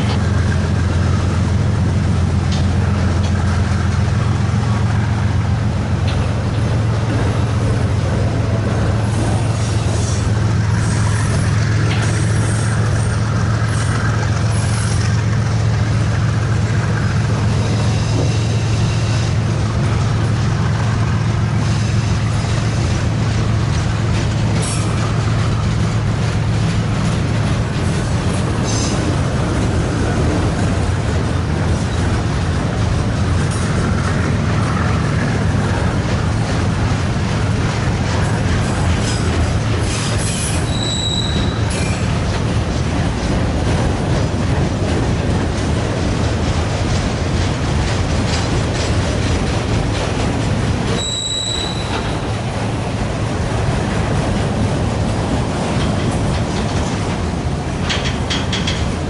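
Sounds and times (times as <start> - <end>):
freight train rumbling past: 0.0 - 59.0
high-pitched train squeals: 9.1 - 15.1, 17.6 - 19.4, 39.0 - 42.2, 50.9 - 52.3.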